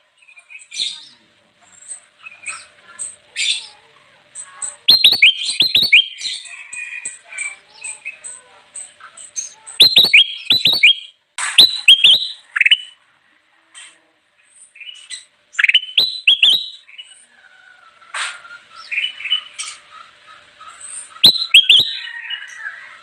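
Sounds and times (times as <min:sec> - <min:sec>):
bulbul singing: 0:04.4 - 0:13.0, 0:14.8 - 0:17.2, 0:20.7 - 0:23.0.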